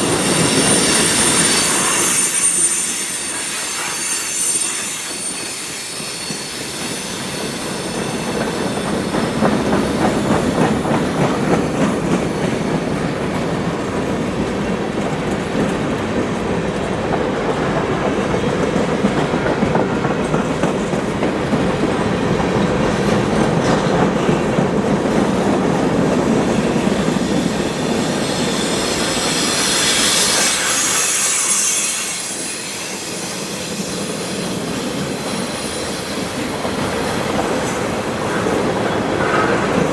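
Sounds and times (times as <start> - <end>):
high wheel squeal: 0.0 - 12.7, 24.1 - 39.9
freight train wheels clicking over rail joints: 0.0 - 39.9.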